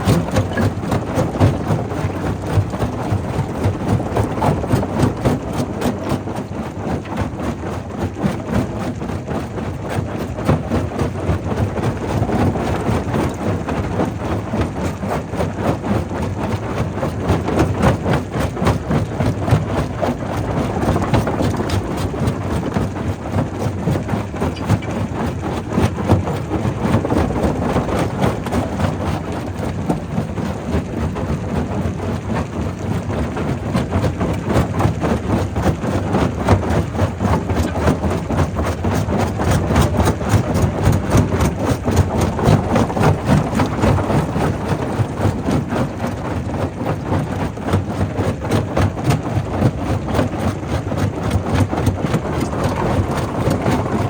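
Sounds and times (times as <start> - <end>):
rock crusher rumbling: 36.7 - 48.5, 49.1 - 54.0.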